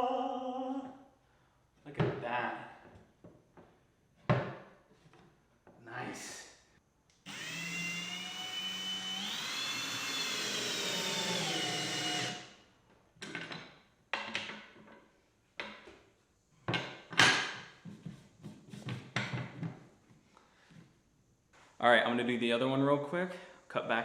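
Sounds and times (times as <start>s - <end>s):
power drill running: 7.3s - 12.6s
wood knocking and clattering: 13.2s - 15.0s.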